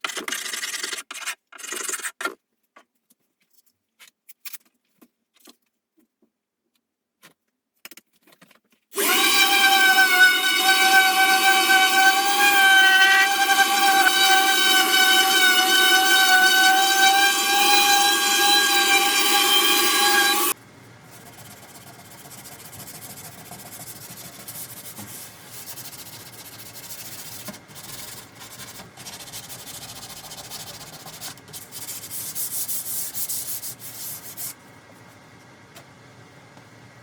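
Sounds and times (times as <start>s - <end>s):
power tool motor whining: 9.0s - 20.6s
hand sanding on wood: 21.2s - 34.6s.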